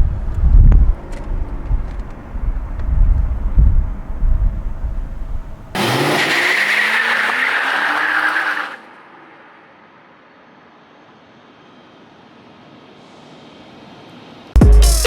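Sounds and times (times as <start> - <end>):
car rumbling on the move: 0.0 - 8.7
car engine revving: 1.0 - 8.7.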